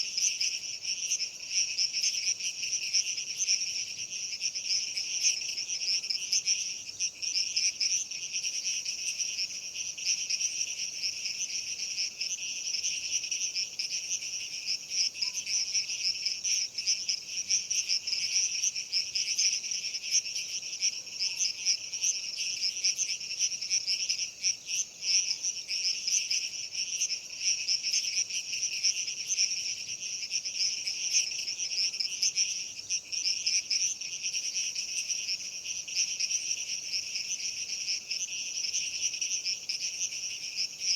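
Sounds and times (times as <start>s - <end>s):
night insects chirping: 0.0s - 40.9s.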